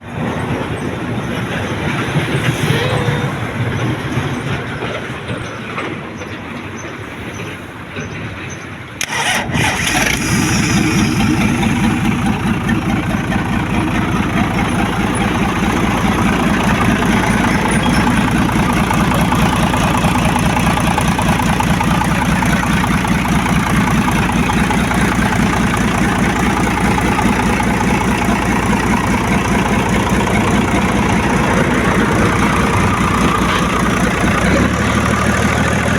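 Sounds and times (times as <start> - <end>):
engine cranking and idling: 9.0 - 35.9.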